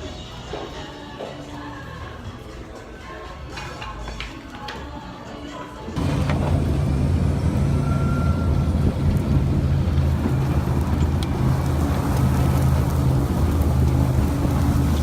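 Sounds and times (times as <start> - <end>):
engine running steadily: 6.0 - 15.0
wind noise on microphone: 8.3 - 15.0.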